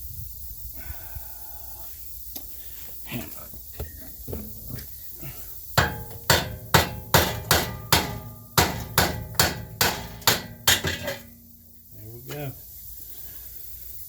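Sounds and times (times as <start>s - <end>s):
hammer striking metal wheel hub: 5.8s - 11.8s.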